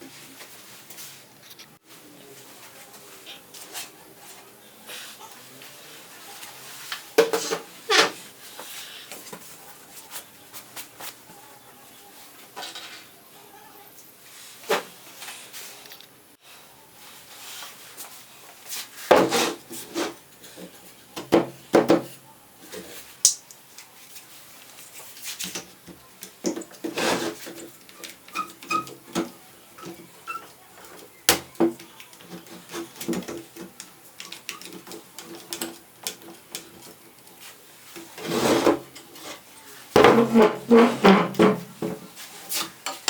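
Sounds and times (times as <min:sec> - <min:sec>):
wood knocking and scraping: 0:40.0 - 0:42.1.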